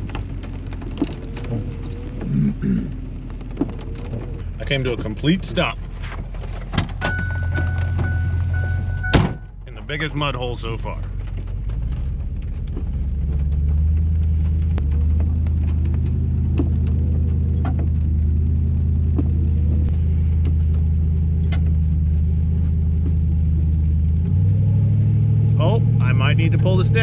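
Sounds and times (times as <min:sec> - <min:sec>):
truck engine revving under load: 0:00.0 - 0:04.6, 0:11.2 - 0:27.0.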